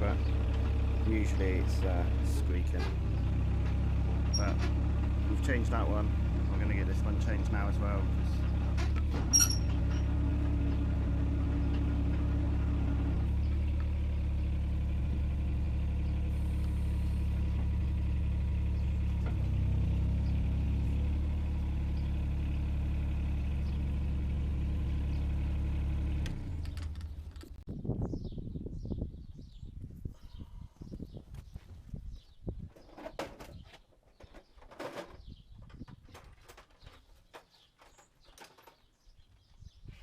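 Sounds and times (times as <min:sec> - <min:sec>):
excavator diesel engine running: 0:00.0 - 0:27.6.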